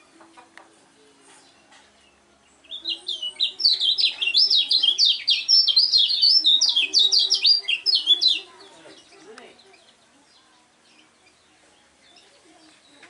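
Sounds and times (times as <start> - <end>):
songbird singing rapid high notes: 2.0 - 12.3.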